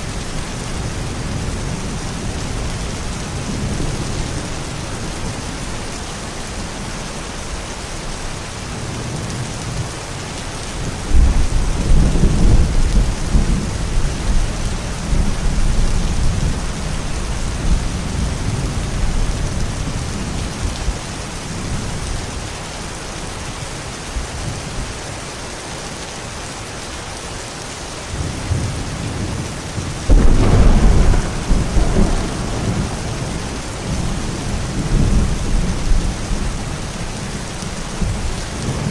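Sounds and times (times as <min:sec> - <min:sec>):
steady rain: 0:00.0 - 0:38.9
deep thunder rumbles: 0:10.9 - 0:20.9, 0:28.1 - 0:38.9.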